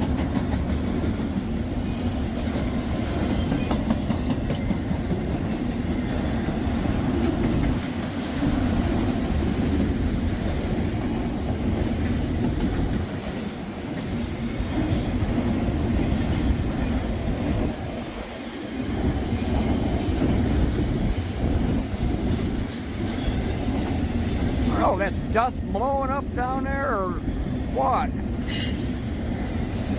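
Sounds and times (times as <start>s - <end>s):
train wheels rumbling on rails: 0.0s - 29.9s
wind buffeting microphone: 6.8s - 24.6s.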